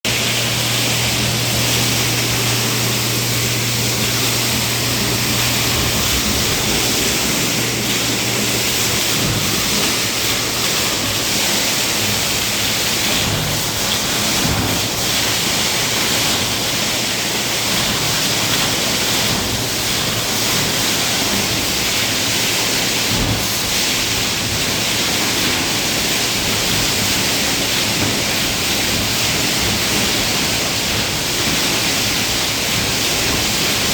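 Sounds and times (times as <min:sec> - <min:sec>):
low motor hum: 0:00.1 - 0:16.7.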